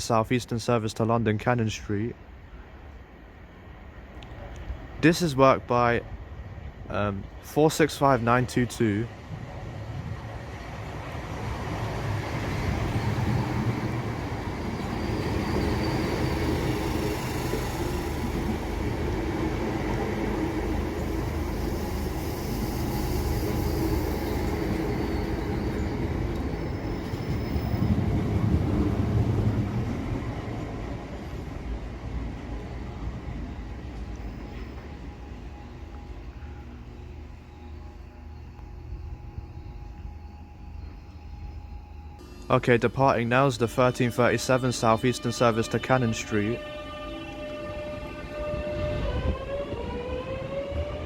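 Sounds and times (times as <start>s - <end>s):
train wheels rumbling on rails: 6.0s - 43.9s.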